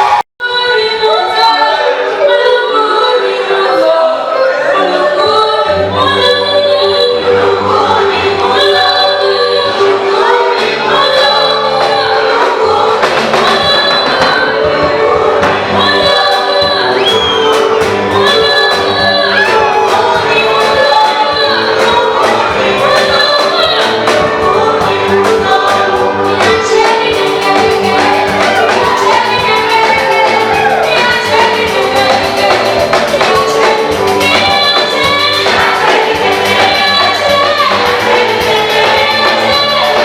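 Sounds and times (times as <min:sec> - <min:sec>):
live band with bass and drums: 0:00.0 - 0:00.2, 0:05.7 - 0:40.0
choir singing gospel in harmony: 0:01.0 - 0:40.0.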